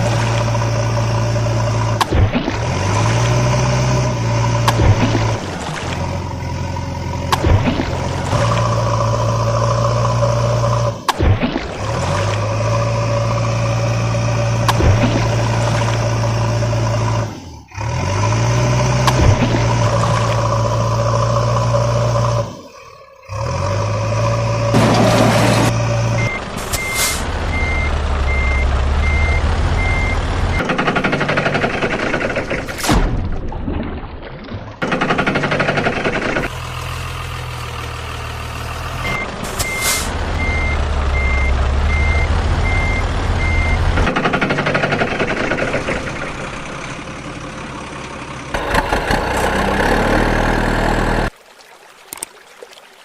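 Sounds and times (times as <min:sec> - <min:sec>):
truck engine running: 0:00.0 - 0:32.8, 0:34.8 - 0:51.4
truck reversing beeper: 0:23.3 - 0:30.7, 0:38.5 - 0:44.0.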